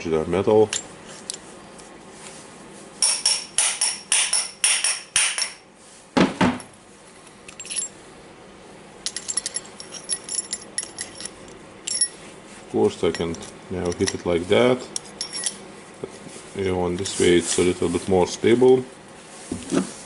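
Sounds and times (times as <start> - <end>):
hammer striking metal punch: 3.0 - 5.6.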